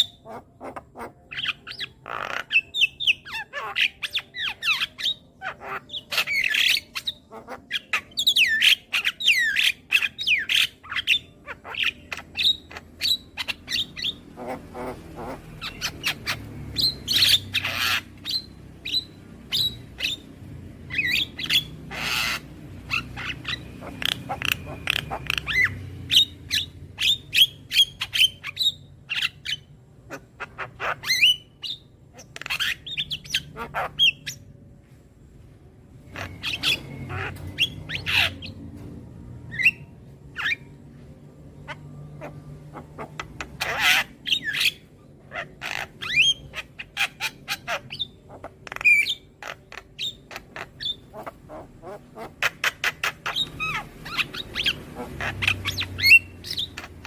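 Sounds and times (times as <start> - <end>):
myna squawking and whistling: 20.9 - 34.4.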